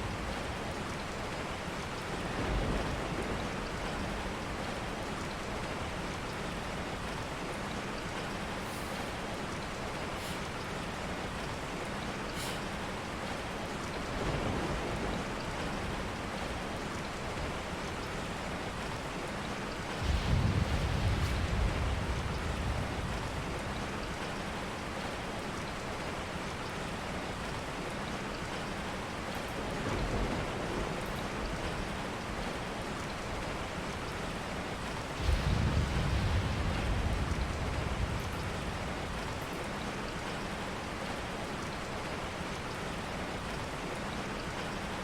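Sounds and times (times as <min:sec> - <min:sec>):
steady rain falling: 0:00.0 - 0:45.0
low rumbles: 0:20.0 - 0:24.3, 0:35.2 - 0:39.7.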